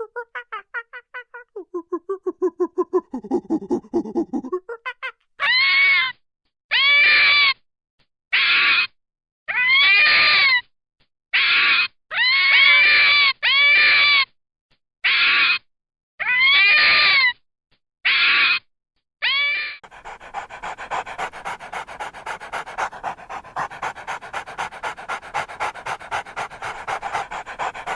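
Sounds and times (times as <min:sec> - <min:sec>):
animal high-pitched cries: 0:19.2 - 0:27.9.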